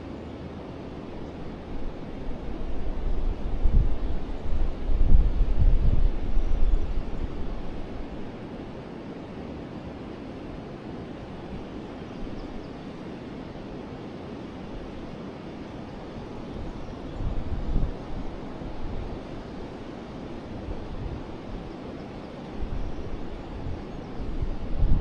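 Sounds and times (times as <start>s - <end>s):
wind buffeting microphone: 1.4s - 8.4s, 16.2s - 21.8s, 22.5s - 25.0s.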